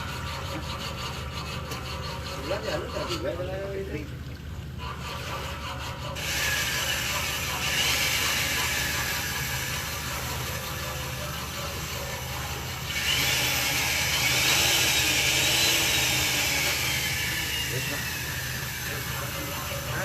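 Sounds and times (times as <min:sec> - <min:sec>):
steady low hum: 0:00.0 - 0:20.0
machinery noise: 0:04.8 - 0:20.0.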